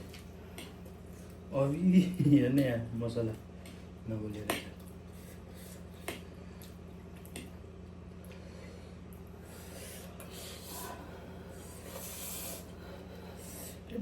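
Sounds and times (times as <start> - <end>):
steady low hum: 0.0 - 14.0
chewing: 4.4 - 7.6
breathing: 8.3 - 13.9.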